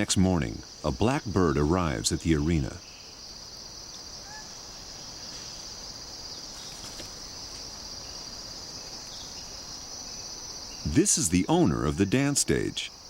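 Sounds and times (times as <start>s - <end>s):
insects chirping: 0.0s - 13.0s
faint bird chirps: 0.7s - 13.0s.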